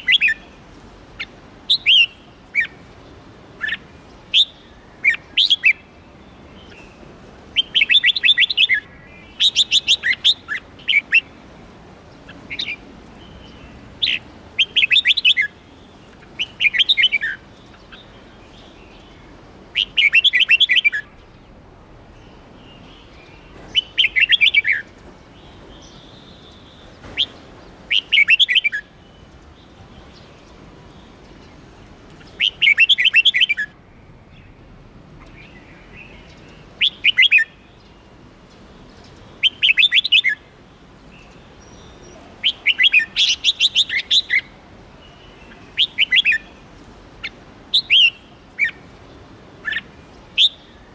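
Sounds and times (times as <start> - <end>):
bird call notes: 35.2 - 38.0, 39.0 - 40.5, 41.2 - 46.6, 47.2 - 48.8, 49.6 - 50.9
bird singing bright notes: 35.2 - 40.5, 41.1 - 48.8.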